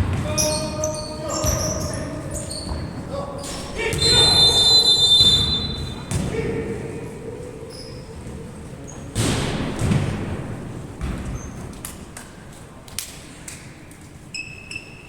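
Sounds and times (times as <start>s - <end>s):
voices: 0.0s - 10.1s.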